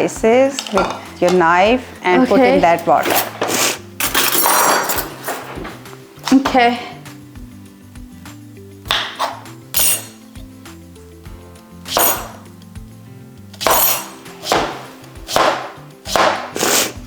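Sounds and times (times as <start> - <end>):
knife chopping on cutting board: 8.9 - 10.2, 11.9 - 12.5, 13.6 - 17.0.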